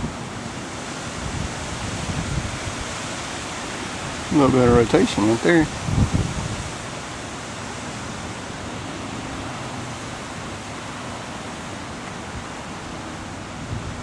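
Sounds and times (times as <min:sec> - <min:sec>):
wind rushing: 0:00.0 - 0:11.0
wind buffeting microphone: 0:00.0 - 0:14.0.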